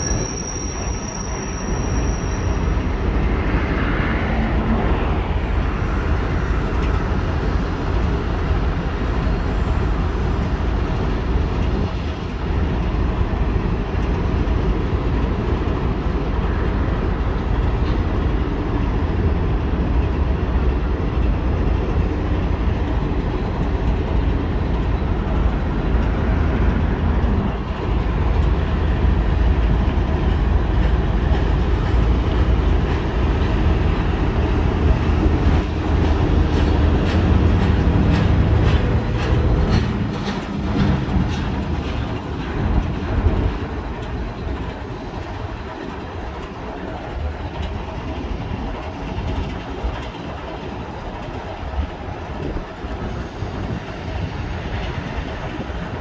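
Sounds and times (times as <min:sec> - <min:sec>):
heavy low train rumble: 0:00.0 - 0:56.0
wheel clicks over rail joints: 0:35.2 - 0:44.7.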